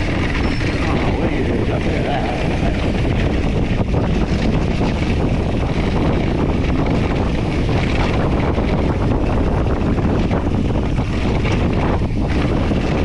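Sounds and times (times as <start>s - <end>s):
bike tyres rolling on dirt: 0.0s - 13.0s
wind on microphone: 0.0s - 13.0s
bike knocks and rattles: 2.8s - 13.0s.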